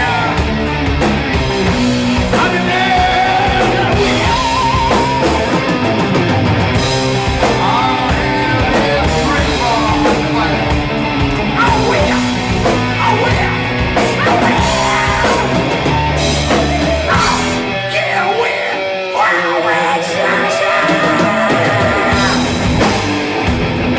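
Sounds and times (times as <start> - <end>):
rock music: 0.0 - 23.9
person singing: 2.2 - 5.6, 7.4 - 22.5.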